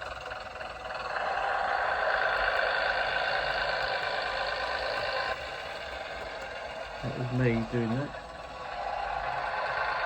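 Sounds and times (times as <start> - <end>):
diesel engine sound through small speaker: 0.0 - 10.0.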